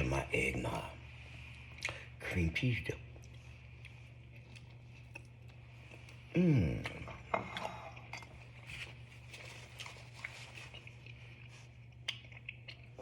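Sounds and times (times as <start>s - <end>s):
steady low hum: 0.0s - 13.0s
man humming mmm: 6.3s - 7.2s
faint eating clicks: 11.9s - 13.0s.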